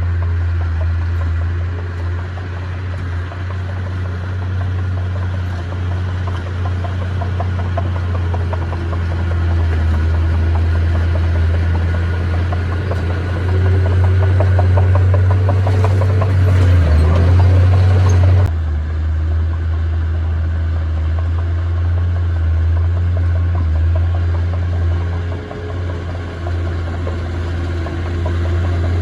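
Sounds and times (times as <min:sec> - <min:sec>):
diesel engine humming: 0:00.0 - 0:29.0
rapid clicking rattle: 0:02.1 - 0:18.5.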